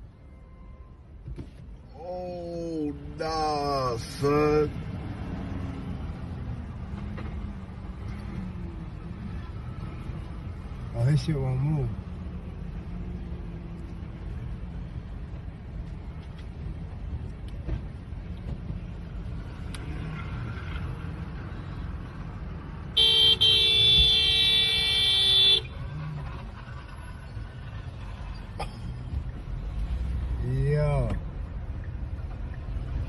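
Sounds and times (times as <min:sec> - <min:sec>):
road traffic rumble: 0:00.0 - 0:33.0
car horn blast: 0:23.0 - 0:25.7.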